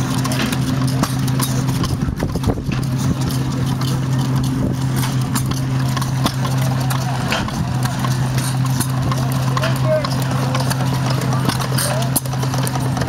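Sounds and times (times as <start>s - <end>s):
stationary engine clacking knocks: 0.0s - 13.0s.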